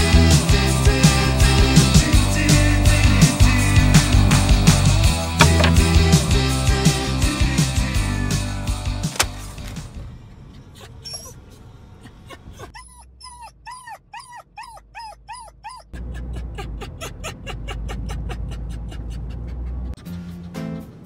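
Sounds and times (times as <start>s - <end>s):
dog whimpering: 10.6s - 20.0s.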